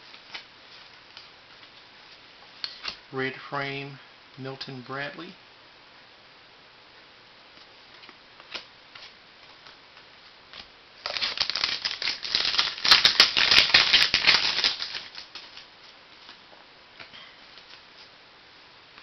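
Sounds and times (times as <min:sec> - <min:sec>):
plastic wrapper tearing and crinkling: 0:11.0 - 0:15.7.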